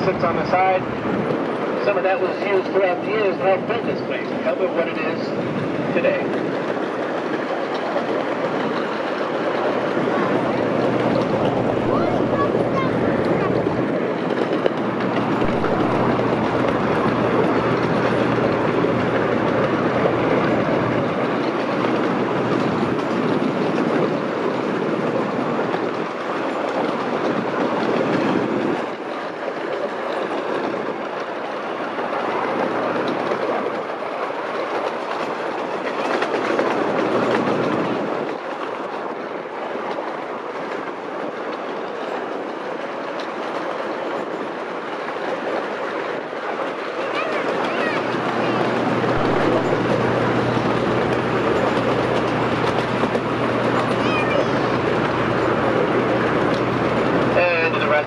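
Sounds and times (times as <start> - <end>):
train wheels clattering on rail: 0.0 - 58.0.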